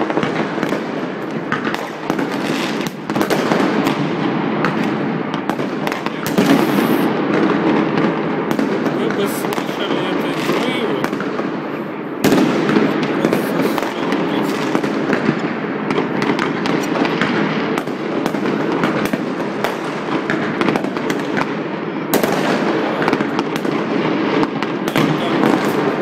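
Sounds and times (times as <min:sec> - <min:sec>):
fireworks crackling and banging: 0:00.0 - 0:26.0
sharp loud firework bangs: 0:00.0 - 0:26.0.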